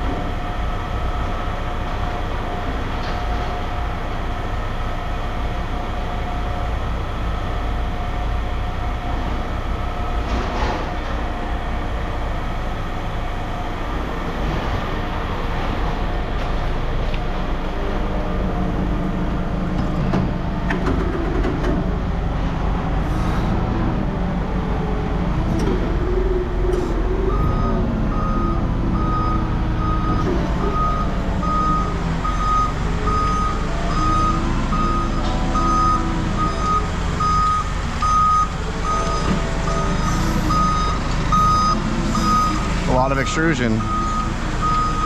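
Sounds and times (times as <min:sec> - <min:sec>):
heavy vehicle engine running: 0:00.0 - 0:45.0
reverse alarm beeping: 0:26.7 - 0:45.0.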